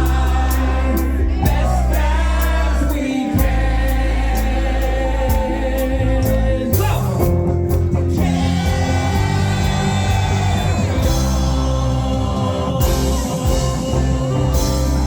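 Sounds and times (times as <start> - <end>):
live band playing soft rock: 0.0 - 15.0
person singing: 8.2 - 15.0.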